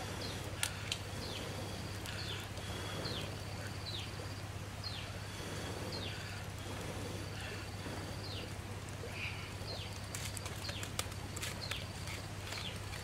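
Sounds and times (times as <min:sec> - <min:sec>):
steady low hum: 0:00.0 - 0:13.0
sharp clicks: 0:10.0 - 0:13.0.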